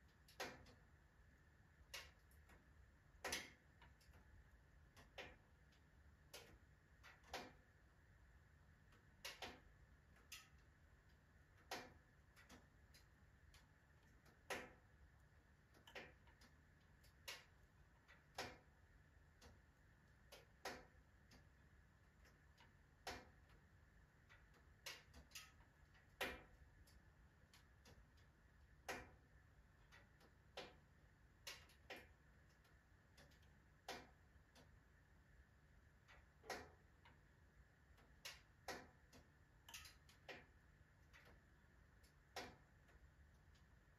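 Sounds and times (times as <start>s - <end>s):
wood fire crackling in a stove: 0.0s - 43.9s.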